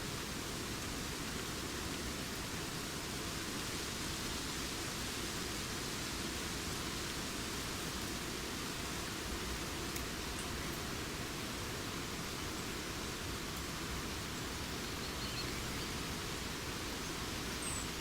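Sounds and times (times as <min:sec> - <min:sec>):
wind rustling forest leaves: 0:00.0 - 0:18.0.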